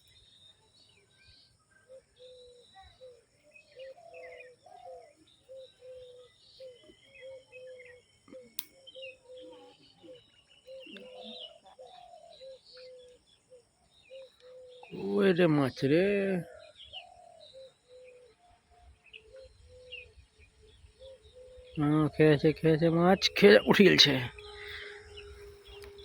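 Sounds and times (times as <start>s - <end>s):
faint insects: 0.0s - 26.0s
higher bird chirps: 0.0s - 26.0s
bird repeating low note: 14.1s - 26.0s.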